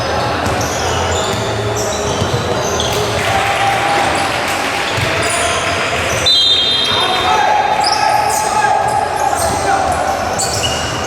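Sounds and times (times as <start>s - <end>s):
sneakers squeaking on court: 0.0s - 3.3s, 4.0s - 11.0s
crowd noise: 0.0s - 11.0s
basketball dribbling: 0.4s - 3.3s, 4.9s - 5.4s.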